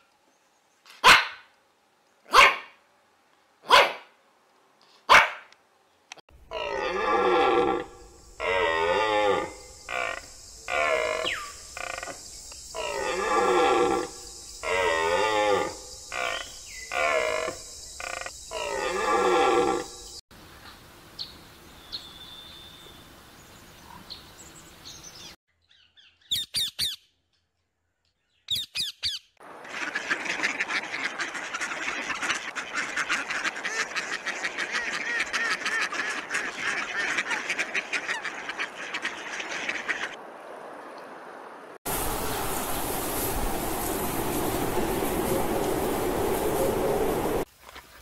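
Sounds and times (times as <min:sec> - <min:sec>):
ducks quacking: 0:29.4 - 0:40.2.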